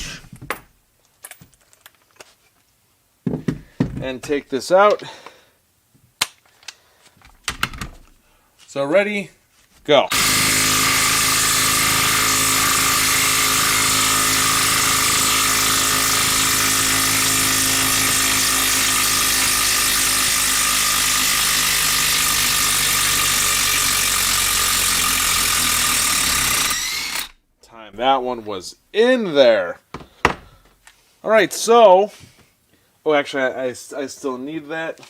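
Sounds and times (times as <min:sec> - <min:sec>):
impact wrench hammering: 0:10.1 - 0:27.4.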